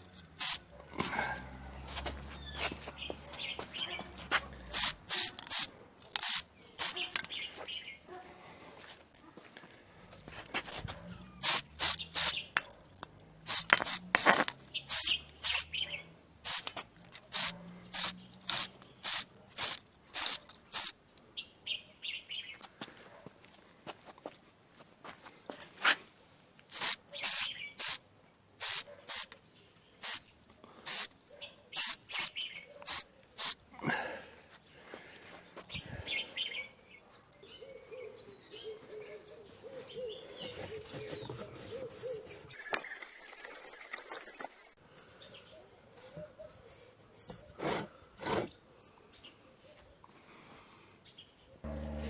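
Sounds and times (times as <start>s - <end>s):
aerosol spray can hissing: 4.7s - 7.0s, 11.4s - 12.4s, 13.5s - 15.7s, 16.5s - 16.7s, 17.3s - 20.9s, 26.7s - 28.0s, 28.6s - 29.3s, 31.8s - 33.6s.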